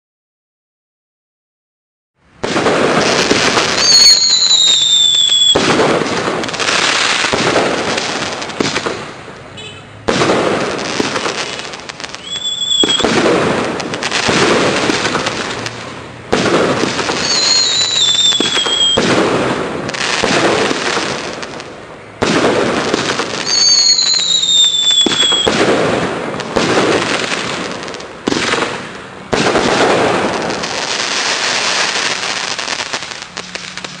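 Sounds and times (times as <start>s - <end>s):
firework bangs: 2.4s - 34.0s
falling whistling tone: 12.2s - 13.0s, 17.2s - 19.0s.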